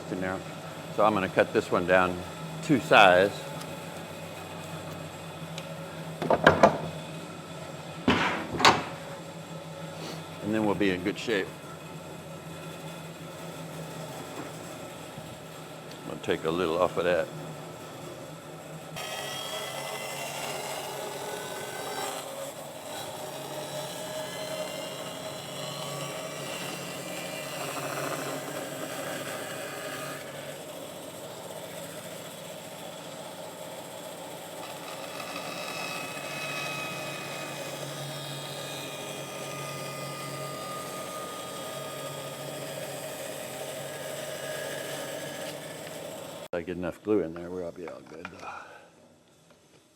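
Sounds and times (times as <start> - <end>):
power tool cutting wood: 0.0 - 7.3, 8.1 - 9.3, 9.9 - 18.3, 18.9 - 46.5.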